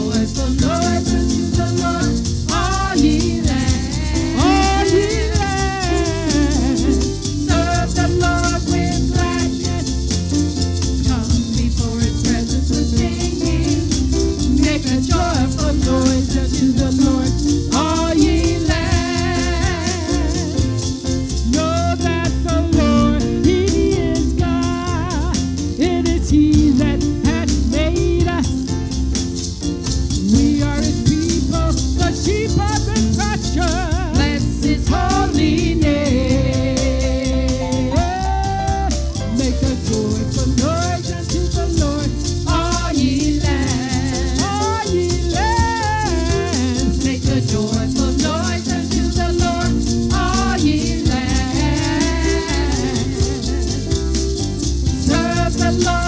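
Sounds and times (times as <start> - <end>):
people singing: 0.0 - 28.6, 30.2 - 56.0
shaker rattle percussion: 0.0 - 56.0
upbeat gospel band: 0.0 - 56.0.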